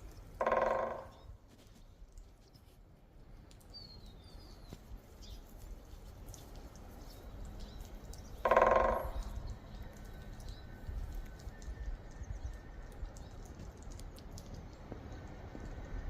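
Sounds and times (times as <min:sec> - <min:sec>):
woodpecker drumming on wood: 0:00.3 - 0:01.3, 0:07.9 - 0:10.4
faint small-bird chirps: 0:03.6 - 0:05.6.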